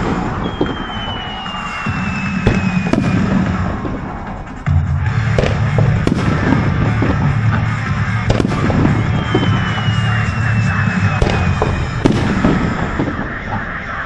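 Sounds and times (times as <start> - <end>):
firework whistle gliding down: 0.0 - 4.4, 8.4 - 14.0
fireworks bursting with bangs: 0.0 - 14.0
music playing: 0.0 - 14.0.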